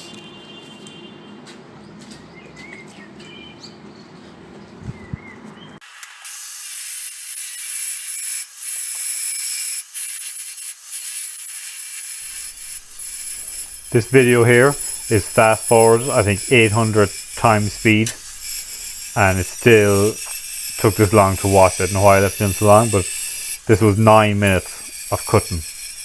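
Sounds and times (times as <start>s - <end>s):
angle grinder cutting metal: 6.0s - 26.0s.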